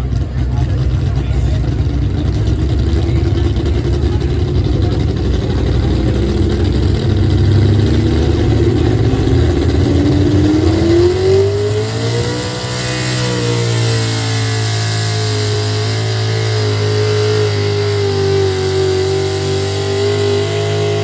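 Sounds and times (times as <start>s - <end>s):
engine running under load: 0.0s - 21.0s.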